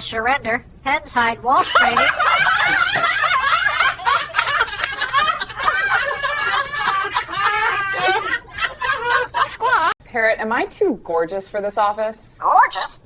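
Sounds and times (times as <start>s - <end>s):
people laughing hard: 1.6s - 10.0s.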